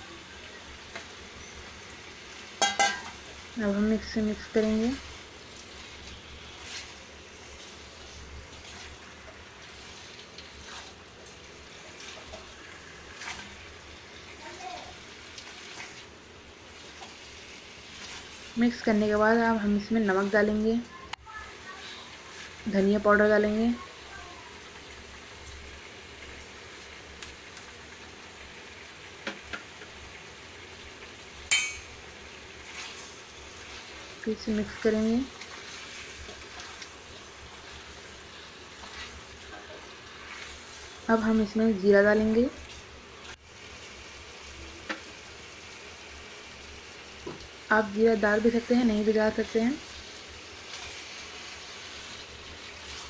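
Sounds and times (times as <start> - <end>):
chicken sizzling in a pan: 0.0 - 53.0
spatula scraping a pan: 5.8 - 11.0, 32.6 - 34.2, 34.8 - 41.1, 49.9 - 53.0
sharp clink: 31.5 - 31.9.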